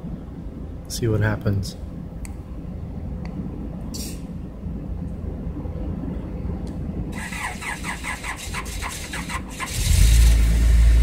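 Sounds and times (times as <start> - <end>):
car engine cranking: 7.2 - 11.0.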